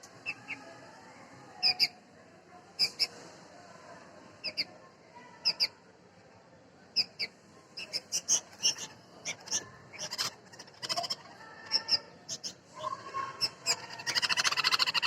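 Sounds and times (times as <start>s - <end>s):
nestlings chirping: 7.0s - 15.0s.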